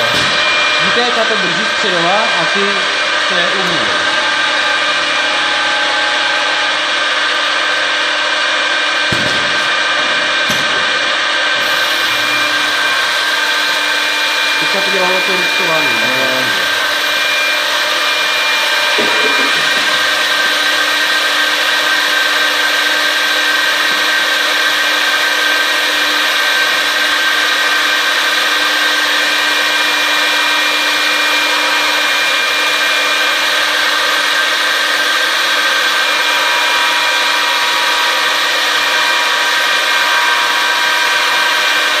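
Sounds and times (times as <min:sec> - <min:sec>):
router spindles milling wood: 0:00.0 - 0:42.0.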